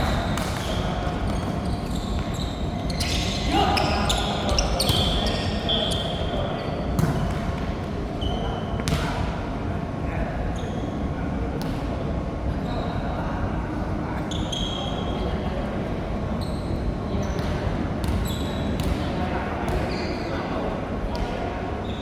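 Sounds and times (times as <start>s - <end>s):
murmur of voices: 0.0s - 22.0s
short high squeaks: 1.5s - 6.2s.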